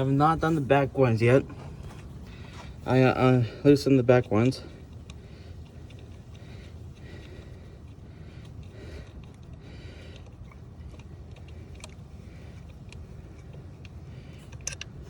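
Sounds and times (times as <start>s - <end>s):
steady low rumble: 0.0s - 15.0s
light clicks: 4.2s - 15.0s.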